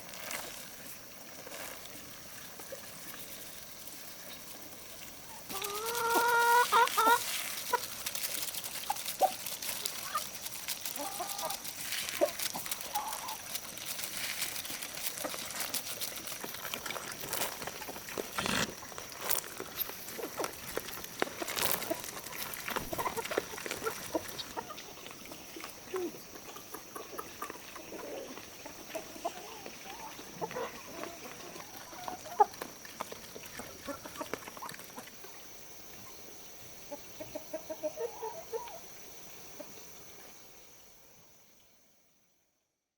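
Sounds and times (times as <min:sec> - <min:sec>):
chickens clucking: 0:05.2 - 0:36.2, 0:36.8 - 0:39.9.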